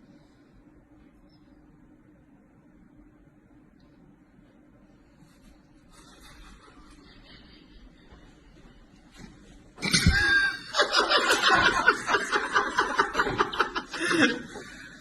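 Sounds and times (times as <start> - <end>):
person laughing hard: 9.8 - 15.0.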